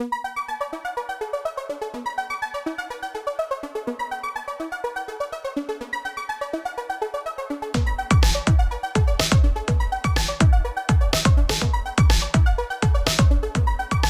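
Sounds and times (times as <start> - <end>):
bouncy synthesizer tune: 7.8 - 14.0.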